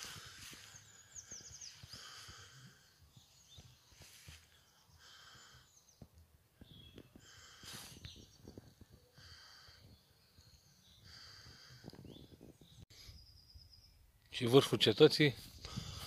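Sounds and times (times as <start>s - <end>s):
soft footsteps on forest floor: 0.0s - 9.7s
faint birdsong: 0.0s - 16.0s.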